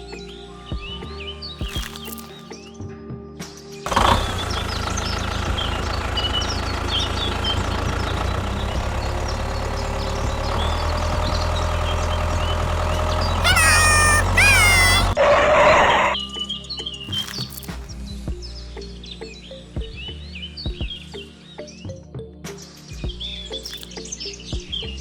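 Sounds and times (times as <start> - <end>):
drawn-out animal calls: 13.4 - 15.2.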